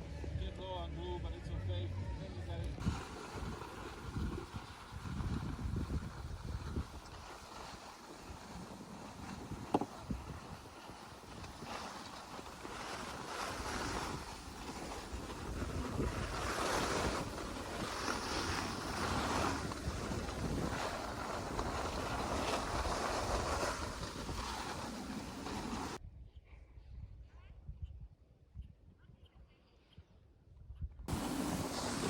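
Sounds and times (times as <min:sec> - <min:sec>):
wind buffeting microphone: 0:02.8 - 0:26.2, 0:31.1 - 0:32.0.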